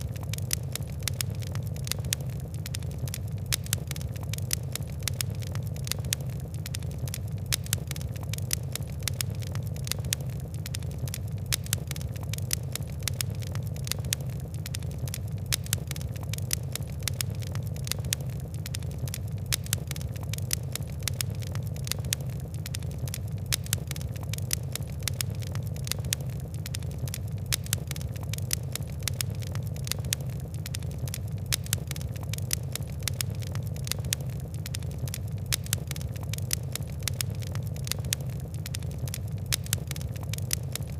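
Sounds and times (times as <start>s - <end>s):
fire crackling: 0.0s - 40.9s.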